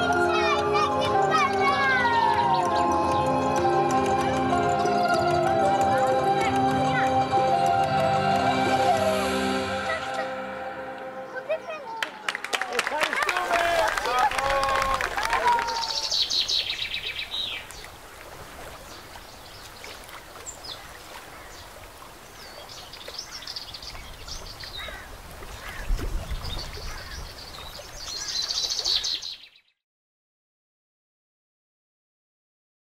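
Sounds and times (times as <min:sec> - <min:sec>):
birds chirping and trilling: 0:00.0 - 0:07.6, 0:15.4 - 0:29.8.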